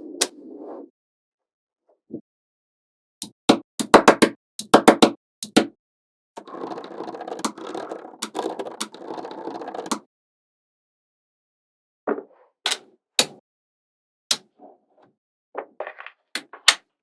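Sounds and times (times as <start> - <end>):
magnetic balls snapping together: 3.2 - 5.7.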